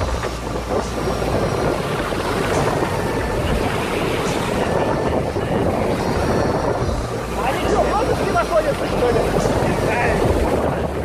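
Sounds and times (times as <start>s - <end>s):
heavy sea surf: 0.0s - 11.0s
strong wind on microphone: 0.0s - 11.0s.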